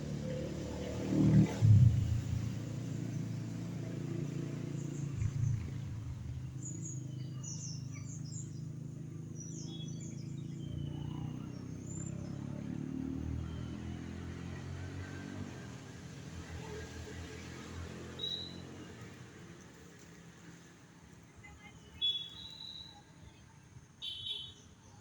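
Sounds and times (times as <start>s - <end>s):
steady low rumble: 1.6s - 2.7s
small birds chirping: 3.0s - 12.8s, 21.8s - 23.4s.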